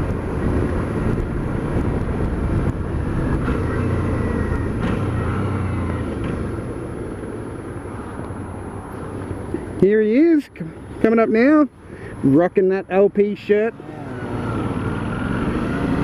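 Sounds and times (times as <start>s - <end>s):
wind rushing over microphone: 0.0s - 12.3s.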